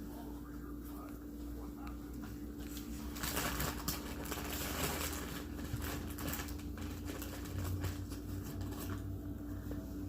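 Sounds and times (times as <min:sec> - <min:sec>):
dense crackling patter: 0:02.6 - 0:09.1.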